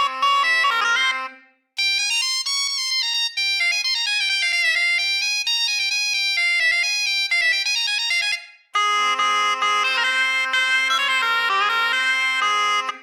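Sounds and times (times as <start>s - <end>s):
bagpipe-like instrument with drone: 0.0s - 2.5s, 6.4s - 13.0s.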